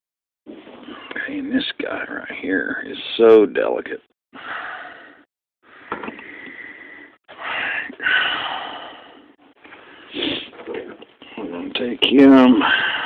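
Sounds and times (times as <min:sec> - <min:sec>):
person breathing heavily: 0:04.4 - 0:10.6, 0:12.5 - 0:13.0.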